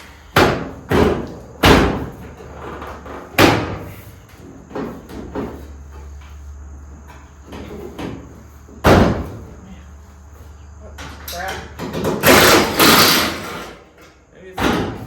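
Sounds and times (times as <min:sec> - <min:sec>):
metal bangs on car body: 0:00.3 - 0:02.2, 0:03.4 - 0:03.9, 0:08.8 - 0:09.5, 0:11.8 - 0:13.7, 0:14.6 - 0:15.0.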